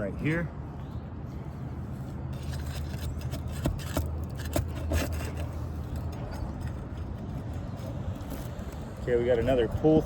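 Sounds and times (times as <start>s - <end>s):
pry tool scraping under shingles: 2.4s - 6.8s.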